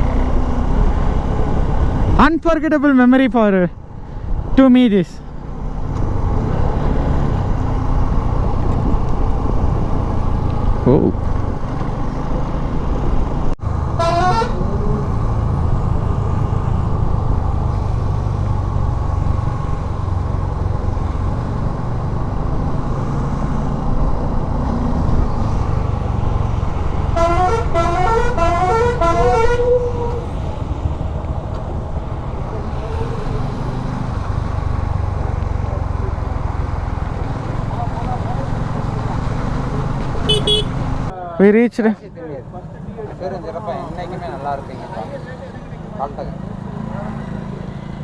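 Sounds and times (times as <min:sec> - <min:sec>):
motorcycle engine and wind rumble: 0:00.0 - 0:02.5, 0:03.8 - 0:13.8, 0:14.6 - 0:27.2, 0:29.9 - 0:41.1
musical vehicle horn: 0:13.8 - 0:15.1, 0:27.0 - 0:30.2, 0:40.2 - 0:41.0.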